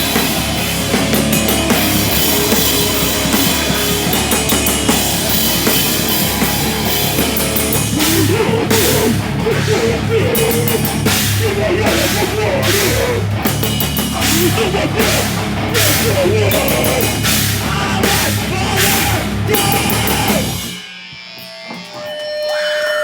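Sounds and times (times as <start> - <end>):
live rock band playing: 0.0 - 20.8
drum kit: 0.0 - 22.2.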